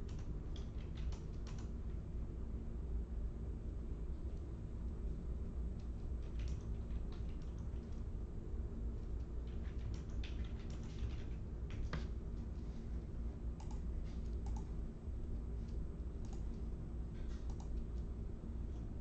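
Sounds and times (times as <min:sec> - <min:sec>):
keyboard typing: 0:00.0 - 0:01.8, 0:06.2 - 0:08.0, 0:09.4 - 0:12.1, 0:13.6 - 0:14.7, 0:16.2 - 0:16.6, 0:17.3 - 0:18.0
steady low hum: 0:00.0 - 0:19.0.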